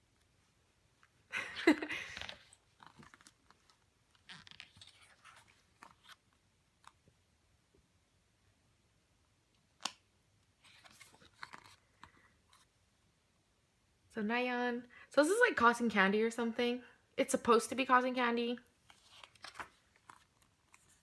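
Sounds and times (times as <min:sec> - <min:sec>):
packaging crinkling and rustling: 0:02.1 - 0:07.0, 0:10.6 - 0:12.7, 0:18.8 - 0:21.0.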